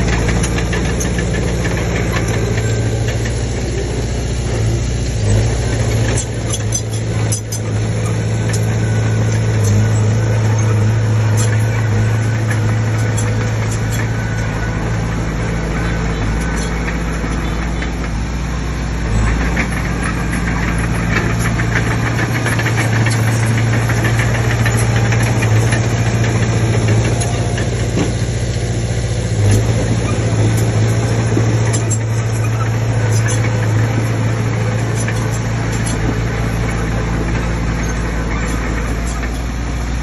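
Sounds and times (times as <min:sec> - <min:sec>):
bulldozer diesel engine: 0:00.0 - 0:40.0
metallic clatter: 0:19.2 - 0:28.5, 0:29.4 - 0:39.6.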